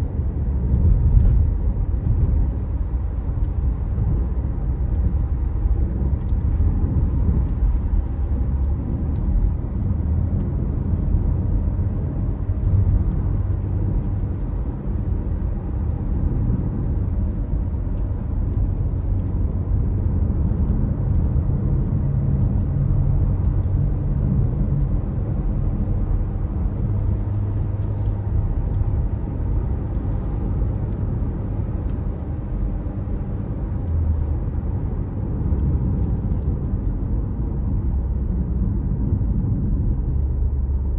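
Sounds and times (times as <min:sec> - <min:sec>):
car engine and tyres rumbling: 0:00.0 - 0:40.9.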